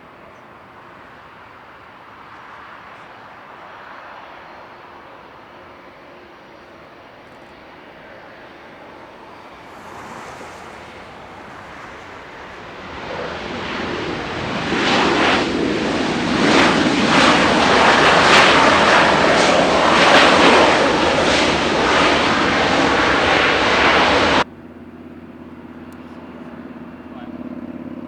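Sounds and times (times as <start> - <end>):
jet engines at high power: 0.0 - 28.0.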